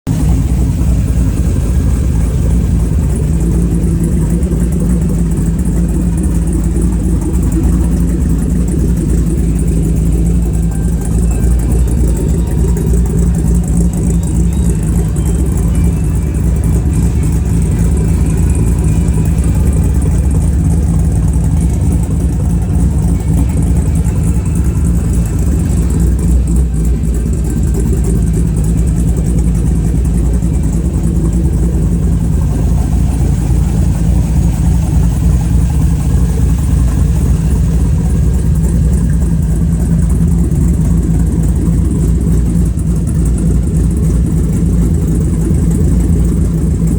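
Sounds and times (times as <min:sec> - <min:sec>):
engine idling: 0:00.0 - 0:46.9.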